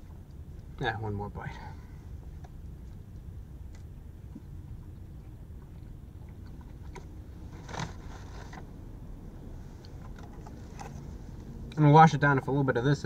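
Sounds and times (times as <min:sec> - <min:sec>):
low steady hum: 0:00.0 - 0:13.0
rustle: 0:04.2 - 0:11.8.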